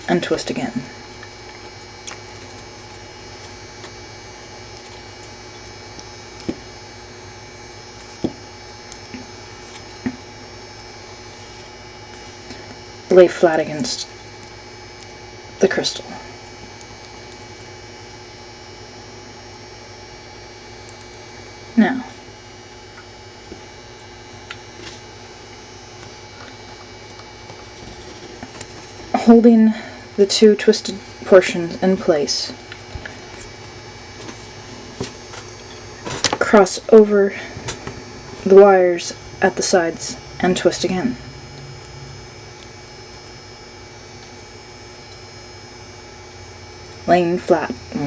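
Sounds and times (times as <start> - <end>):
steady electrical hum: 0.0 - 48.0
wire ticking and clicking: 7.9 - 10.2, 20.8 - 21.2.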